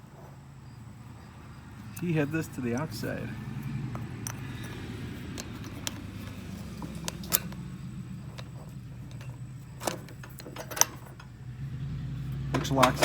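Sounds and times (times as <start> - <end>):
steady low hum: 0.0 - 13.0
sharp clicks and knocks of parts: 1.8 - 13.0.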